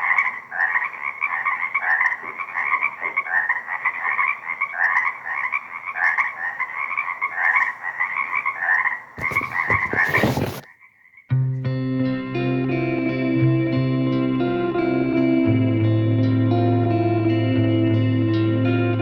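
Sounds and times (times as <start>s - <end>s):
frog chorus: 0.0s - 11.3s.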